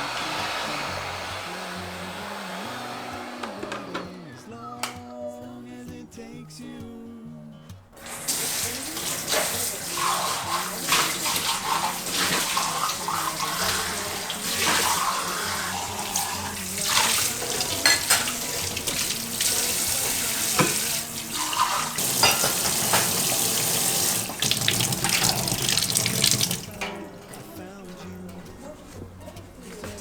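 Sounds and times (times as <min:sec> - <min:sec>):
tap water running into sink: 0:08.0 - 0:30.0.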